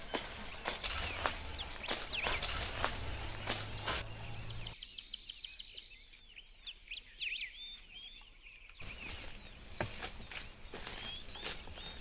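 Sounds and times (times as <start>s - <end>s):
footsteps on grass: 0.0s - 4.8s, 8.8s - 12.0s
birds chirping and whistling: 0.0s - 12.0s
outdoor ambience: 0.0s - 12.0s.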